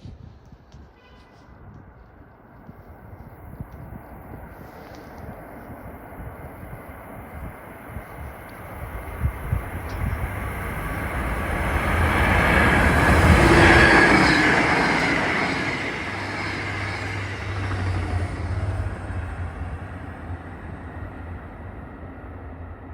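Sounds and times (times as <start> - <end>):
freight train rumbling past: 3.0 - 22.9.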